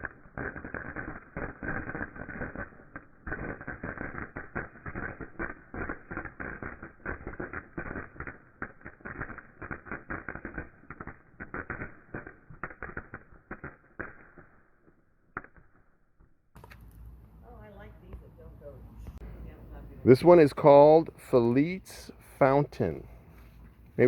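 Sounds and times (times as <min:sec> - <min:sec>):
firework crackling: 0:00.0 - 0:18.2, 0:19.2 - 0:24.0.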